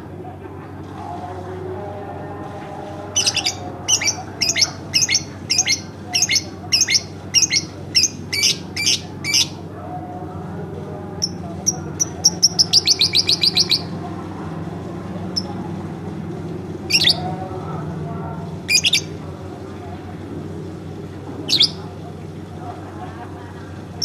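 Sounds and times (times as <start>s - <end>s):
lovebird chirping: 11.2s - 13.9s, 18.7s - 19.1s, 21.5s - 21.8s.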